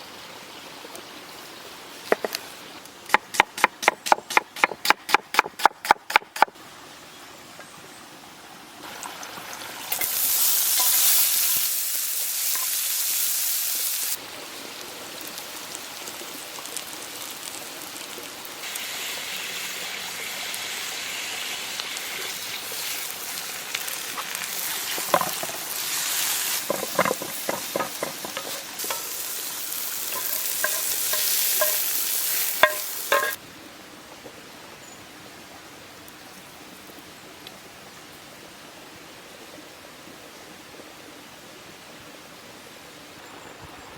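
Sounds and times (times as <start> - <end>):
food sizzling: 8.8 - 33.4
sharp clicks and knocks: 26.6 - 29.0.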